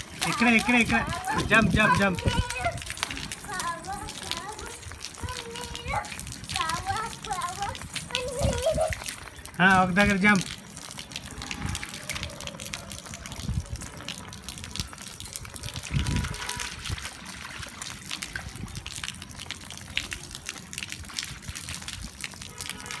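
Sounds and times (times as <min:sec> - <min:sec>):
rain falling: 0:00.0 - 0:23.0.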